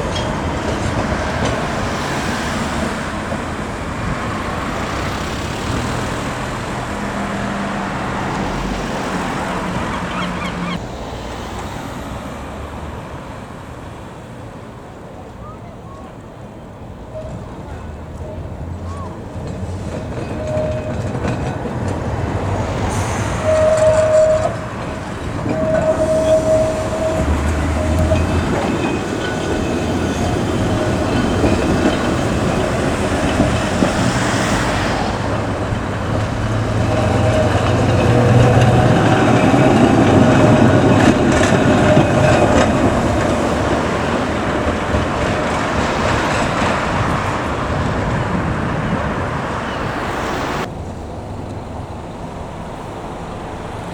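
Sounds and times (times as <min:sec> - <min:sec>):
tram horn tones: 0:00.0 - 0:12.0, 0:17.0 - 0:50.7
tram wheels clattering on rails: 0:00.0 - 0:53.9.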